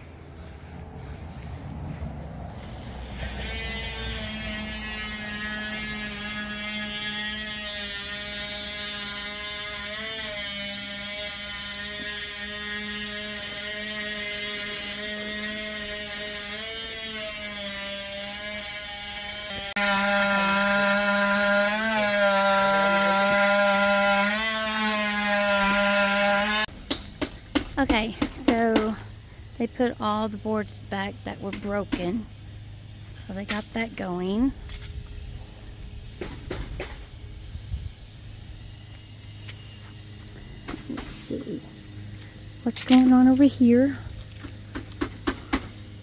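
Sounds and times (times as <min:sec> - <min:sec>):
power tool motor whining: 0:02.7 - 0:26.7.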